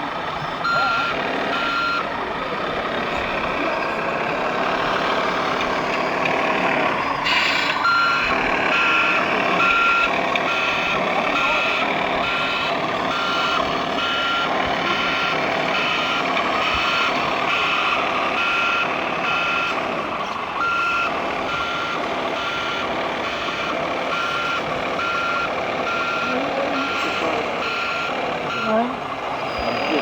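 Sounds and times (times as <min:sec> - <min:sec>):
background din: 0:00.0 - 0:30.0
reversing alarm beeping: 0:00.5 - 0:30.0.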